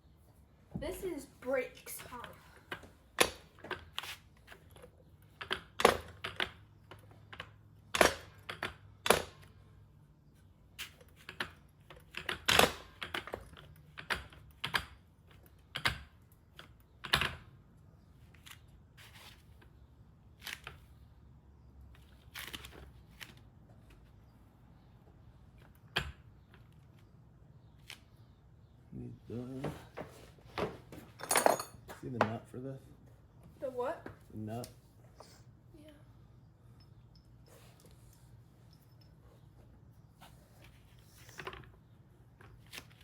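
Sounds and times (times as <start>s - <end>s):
metal tools clicking and knocking: 31.1s - 32.4s.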